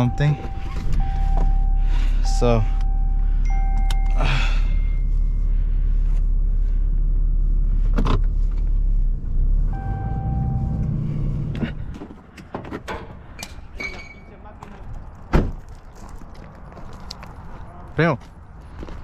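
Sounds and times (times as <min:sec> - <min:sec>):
vehicle rumble inside cab: 0:00.0 - 0:13.7.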